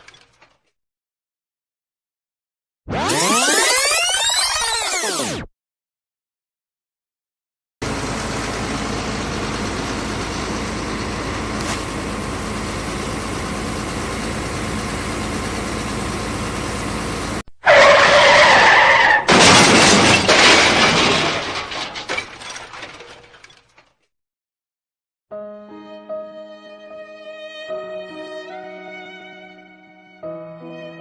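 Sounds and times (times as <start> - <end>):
truck engine running: 7.8 - 18.6
tyre squeal: 17.6 - 19.3
crash with breaking glass: 19.1 - 23.9.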